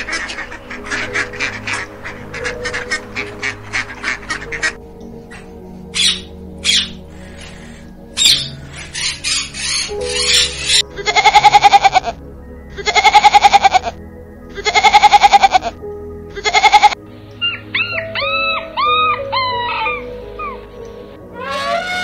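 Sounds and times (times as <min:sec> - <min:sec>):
background music: 0:00.0 - 0:22.0
goat bleating: 0:11.0 - 0:12.1
dog whining: 0:16.8 - 0:20.6.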